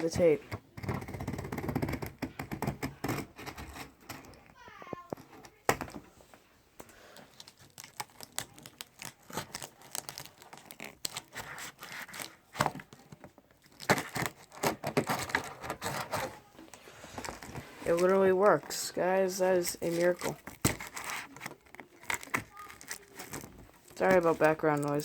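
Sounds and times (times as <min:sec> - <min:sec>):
packing tape tearing: 0:07.2 - 0:16.5, 0:19.6 - 0:25.0
cardboard scraping and crinkling: 0:07.4 - 0:25.0.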